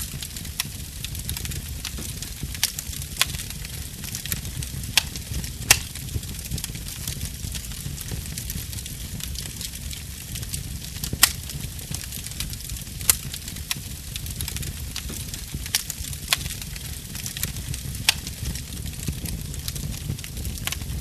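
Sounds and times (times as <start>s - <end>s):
burning wood popping: 0.0s - 21.0s
wood fire crackling and hissing: 0.0s - 21.0s.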